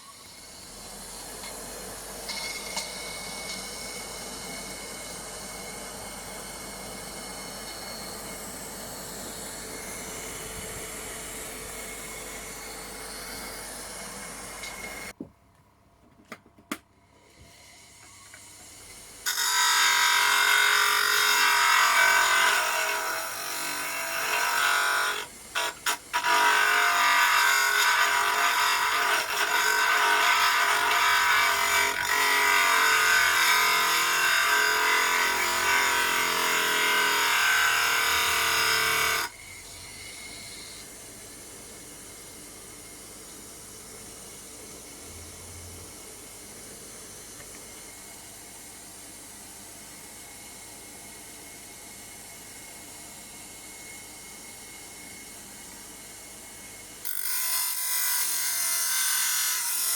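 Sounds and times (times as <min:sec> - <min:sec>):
disc sander grinding: 0:00.2 - 0:15.2.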